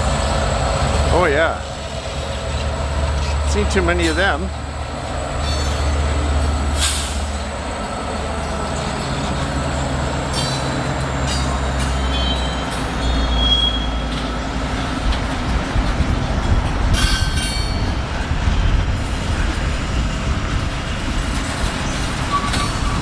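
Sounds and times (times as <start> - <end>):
freight train rumbling: 0.0 - 23.0
train clattering over switches: 2.0 - 4.6, 5.3 - 18.4, 21.0 - 23.0
wheel squeal: 8.8 - 14.3, 21.4 - 23.0.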